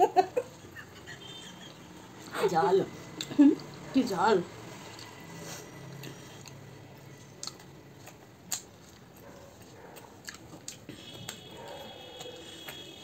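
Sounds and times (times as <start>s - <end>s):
chewing and lip smacks: 4.8s - 13.0s.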